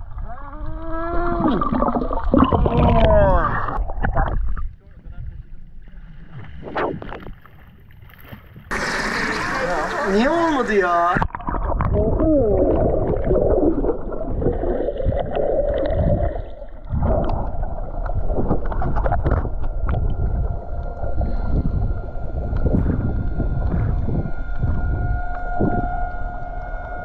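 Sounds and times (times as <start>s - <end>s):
motorboat engine rumbling: 7.8s - 27.0s
steady whine: 8.7s - 27.0s
water rushing: 8.7s - 27.0s.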